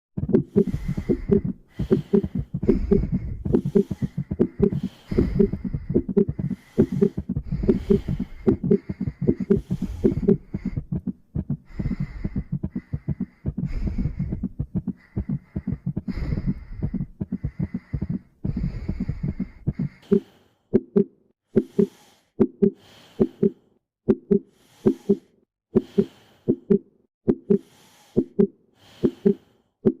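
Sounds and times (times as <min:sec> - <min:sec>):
fast heartbeat: 0:00.2 - 0:20.2
slow lub-dub heartbeat: 0:00.2 - 0:20.2.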